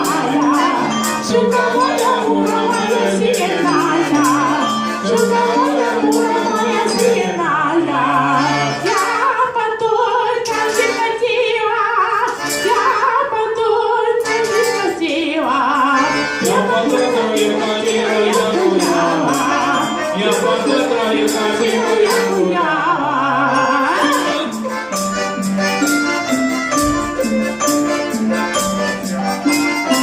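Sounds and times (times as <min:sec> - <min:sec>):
clicking hand percussion: 0:00.0 - 0:07.4, 0:10.4 - 0:11.1, 0:14.2 - 0:22.5, 0:23.7 - 0:30.0
voices singing with vibrato: 0:00.0 - 0:25.0
folk instruments playing: 0:00.0 - 0:30.0.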